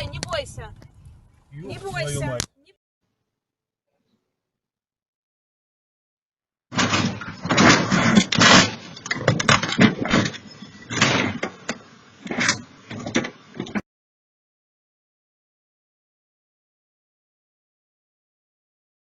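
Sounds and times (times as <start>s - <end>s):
loud irregular knocks and bangs: 6.7s - 13.8s.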